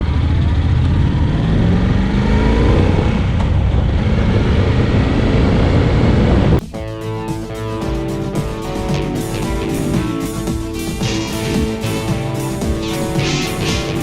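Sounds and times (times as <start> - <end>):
wind and road noise: 0.0 - 6.6
motorcycle engine accelerating: 0.0 - 14.0
guitar music: 6.6 - 14.0.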